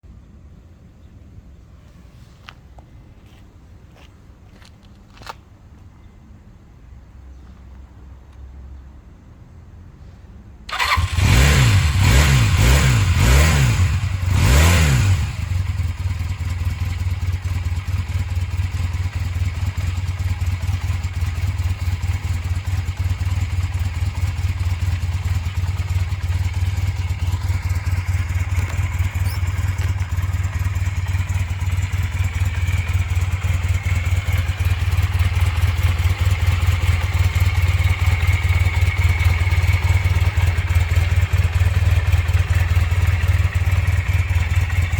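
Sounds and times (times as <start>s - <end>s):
motorcycle engine starting and idling: 10.6s - 44.9s
engine revving blips: 10.7s - 15.8s.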